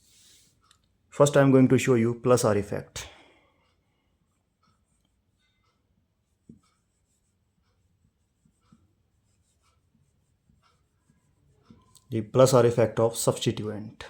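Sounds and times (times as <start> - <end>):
pen writing on surface: 6.2 - 11.9.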